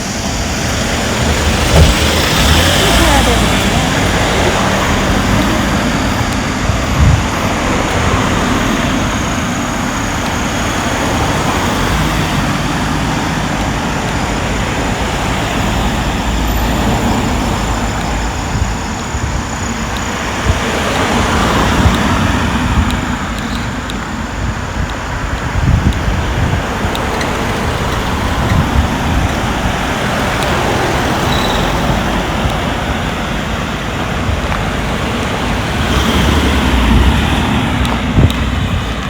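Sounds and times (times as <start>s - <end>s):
low engine rumble: 0.0s - 39.0s
vehicles passing: 0.0s - 39.0s.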